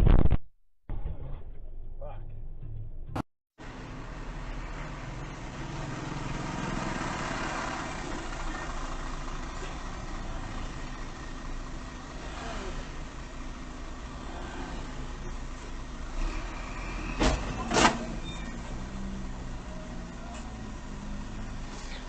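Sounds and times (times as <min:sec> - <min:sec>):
road and cabin noise: 0:03.1 - 0:22.0
car engine running: 0:03.6 - 0:16.2.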